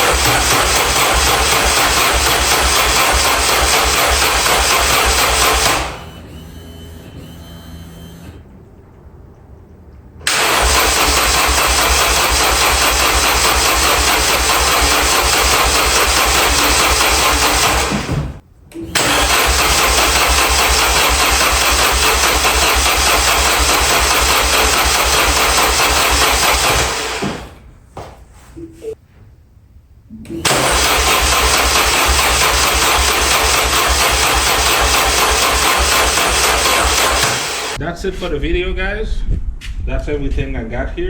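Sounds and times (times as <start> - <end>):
car engine cranking by starter: 0.0 - 8.4, 10.2 - 27.6, 30.3 - 37.8.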